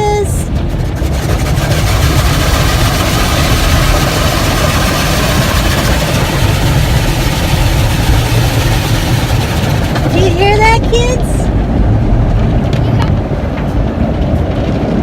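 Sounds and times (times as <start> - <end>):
deep low hum: 0.0 - 15.0
car wash brushes scrubbing: 0.5 - 11.3.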